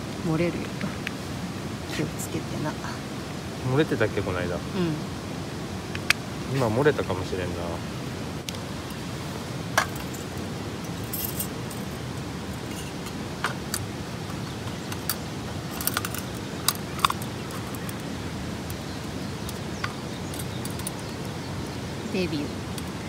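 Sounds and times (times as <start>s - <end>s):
steady background hiss: 0.0s - 23.0s
metal lantern clinking: 9.7s - 21.5s.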